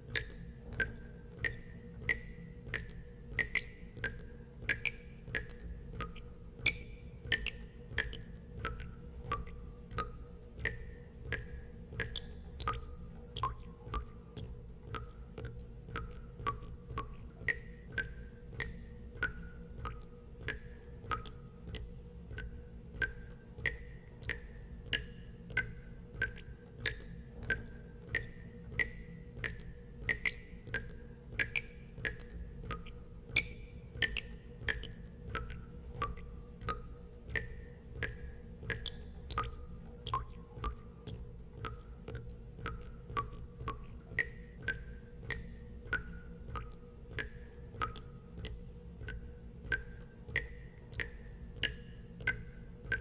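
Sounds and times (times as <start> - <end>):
low steady hum: 0.0 - 53.0
water drops plinking into water: 0.0 - 53.0.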